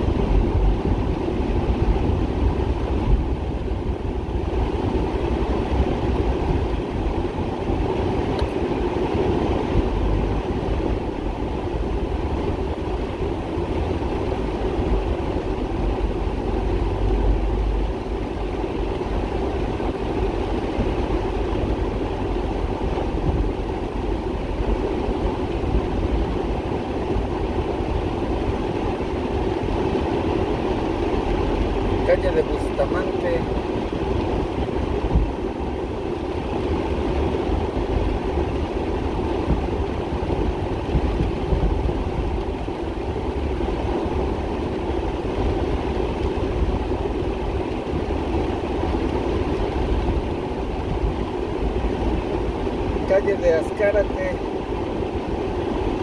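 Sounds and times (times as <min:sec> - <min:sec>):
heavy rain on pavement: 0:23.4 - 0:56.0.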